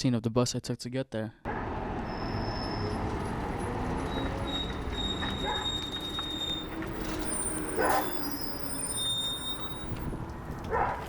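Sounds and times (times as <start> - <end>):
bus engine and road rumble: 1.5 - 11.0.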